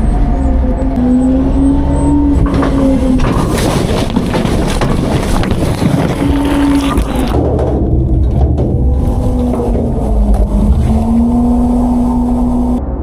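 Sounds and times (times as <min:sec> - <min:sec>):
garbage truck engine: 0:00.0 - 0:13.0
hydraulic whine: 0:08.8 - 0:13.0.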